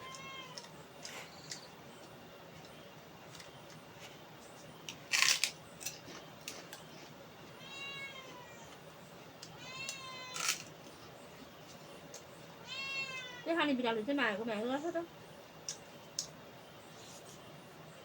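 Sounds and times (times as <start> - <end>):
cat meowing: 0.0 - 0.7, 7.6 - 8.8, 9.5 - 10.5, 12.6 - 13.5.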